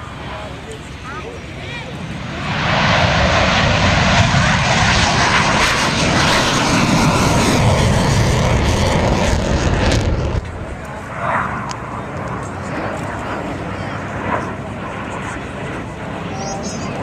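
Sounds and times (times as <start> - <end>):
airplane passing overhead: 0.0 - 17.0.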